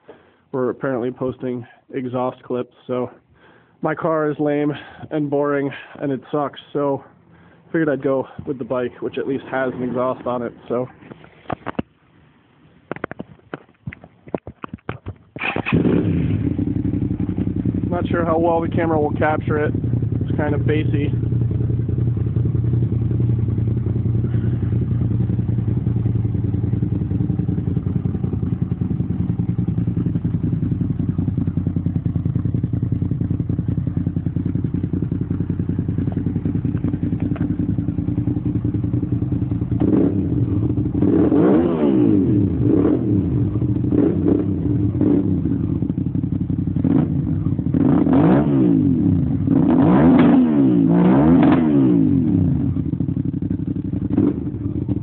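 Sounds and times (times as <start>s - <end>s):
motorcycle throttle blips: 13.0s - 55.0s
motorcycle engine idling: 15.4s - 49.6s, 52.0s - 55.0s.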